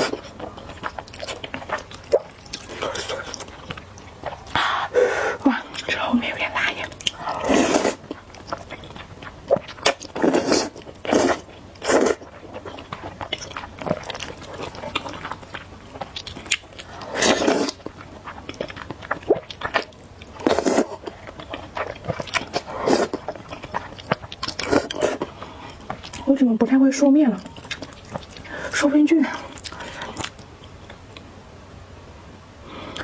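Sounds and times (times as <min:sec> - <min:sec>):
wet chewing and lip-smacking: 0:00.0 - 0:04.6, 0:05.6 - 0:26.3, 0:27.3 - 0:28.8, 0:29.4 - 0:31.3
noodle slurps: 0:07.2 - 0:13.2, 0:16.8 - 0:17.9, 0:19.2 - 0:25.4.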